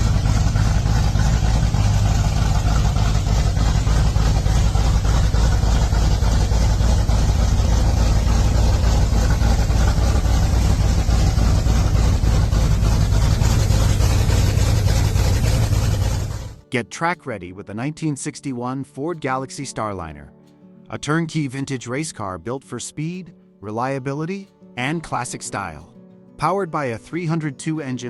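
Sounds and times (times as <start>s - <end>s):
vee eight engine idling: 0.0s - 16.6s.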